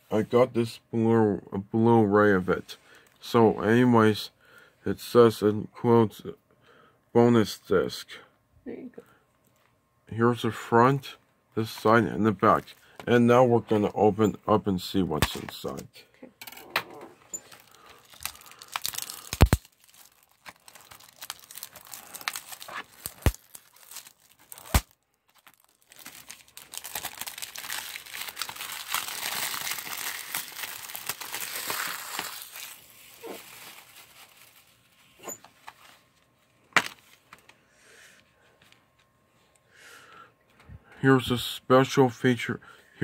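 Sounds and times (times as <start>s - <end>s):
plastic wrapping crinkling and tearing: 17.4s - 36.0s.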